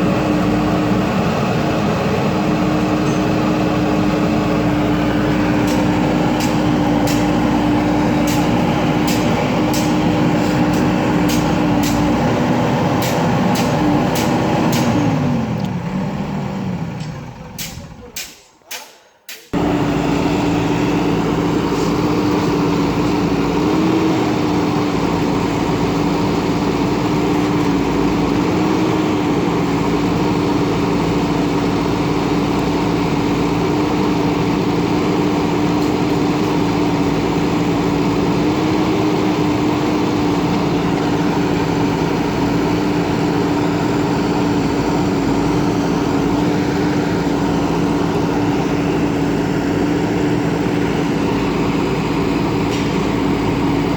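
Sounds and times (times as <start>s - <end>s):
diesel engine running at high revs: 0.0s - 18.4s, 19.5s - 53.9s.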